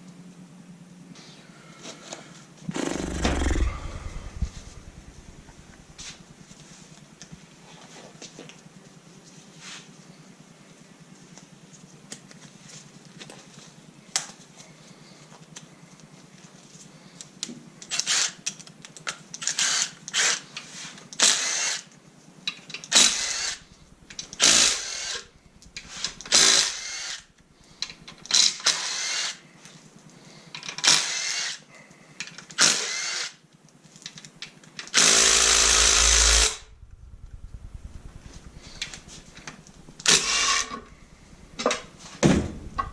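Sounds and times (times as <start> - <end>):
handheld power tool bursts: 22.9 - 27.2, 35.0 - 36.7.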